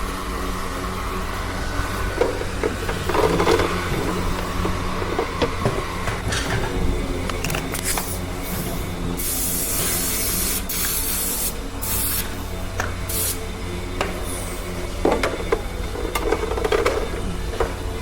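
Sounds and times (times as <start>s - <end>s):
knocks and clatters: 2.1s - 8.1s, 15.0s - 18.0s
hissing spray bursts: 7.8s - 12.5s, 13.1s - 13.5s.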